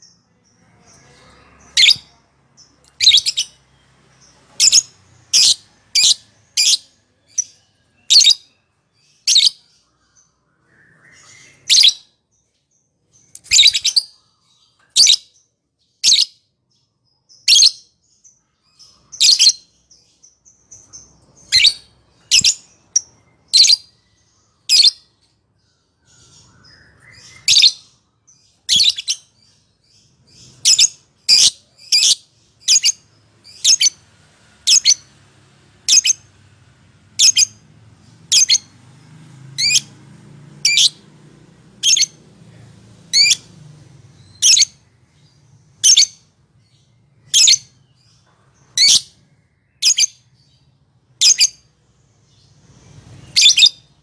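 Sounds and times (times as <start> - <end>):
lovebird shrill chirping: 0.4 - 3.7, 4.6 - 12.1, 13.3 - 15.2, 20.6 - 23.9, 26.1 - 28.0, 28.7 - 34.0, 34.6 - 35.1, 35.8 - 36.3, 37.2 - 37.6, 38.3 - 38.7, 39.6 - 39.9, 41.8 - 42.2, 43.1 - 43.5, 44.2 - 44.8, 45.8 - 47.7, 49.8 - 50.2, 51.2 - 51.7, 53.3 - 54.0.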